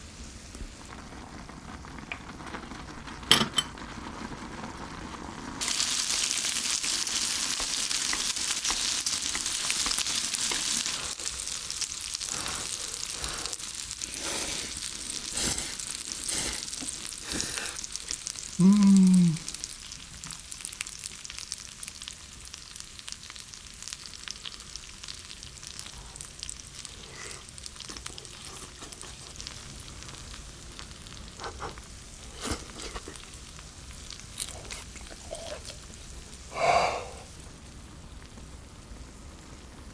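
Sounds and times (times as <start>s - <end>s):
meat sizzling in a pan: 0.0s - 39.9s
cookware clicks and knocks: 3.3s - 3.7s.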